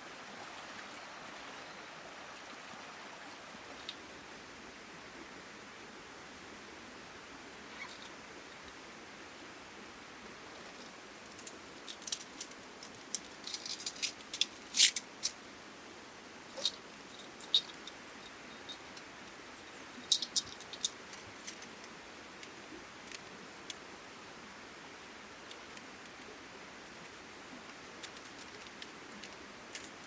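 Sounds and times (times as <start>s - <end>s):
light metallic clicks and clinks: 10.5s - 15.4s, 16.5s - 21.9s, 28.0s - 30.0s.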